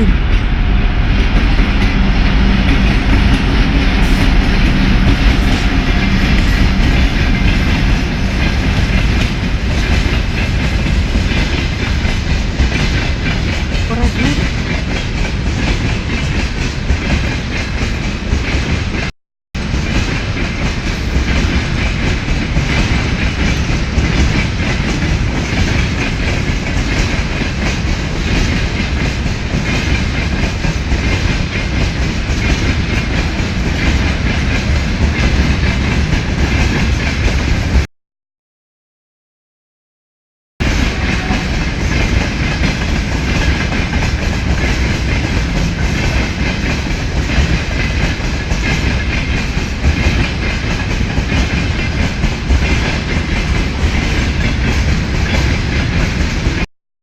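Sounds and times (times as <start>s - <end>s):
diesel locomotive running: 0.0s - 37.8s, 40.6s - 56.7s
wheels clacking over rail joints: 40.6s - 56.6s.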